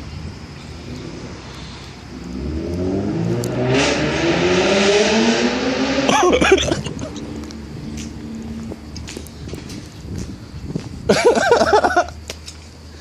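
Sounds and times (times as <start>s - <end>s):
car engine accelerating hard: 0.7s - 9.9s.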